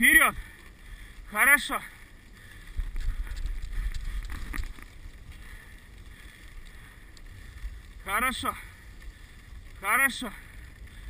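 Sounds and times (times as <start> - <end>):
wind rumbling on microphone: 2.2 - 9.8.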